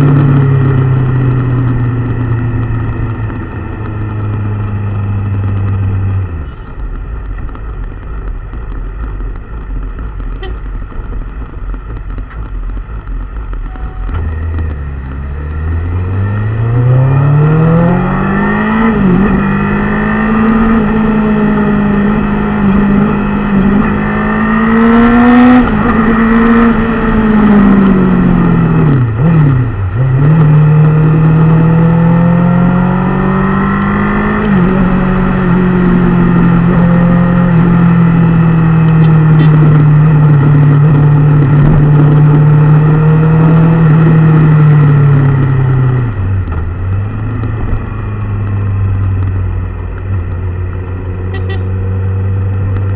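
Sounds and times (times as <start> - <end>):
engine revving: 13.7 - 52.9.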